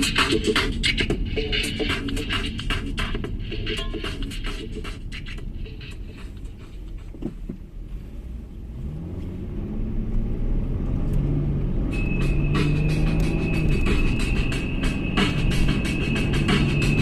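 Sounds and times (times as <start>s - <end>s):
vehicle engine rumble: 0.0s - 17.0s
steady high whine: 11.9s - 17.0s.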